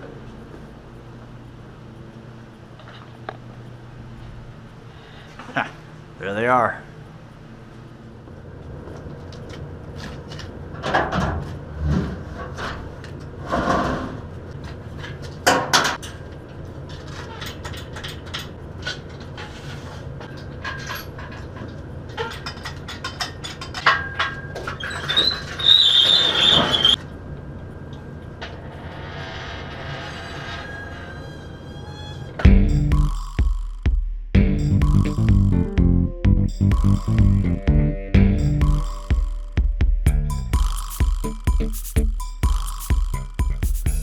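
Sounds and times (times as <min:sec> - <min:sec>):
high squeak: 0:24.8 - 0:27.0, 0:28.9 - 0:32.5.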